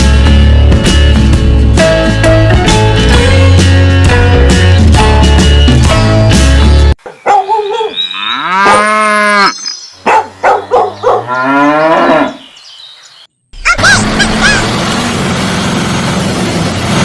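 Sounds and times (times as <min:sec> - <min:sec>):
animal calls: 0:07.0 - 0:12.4, 0:13.6 - 0:14.7.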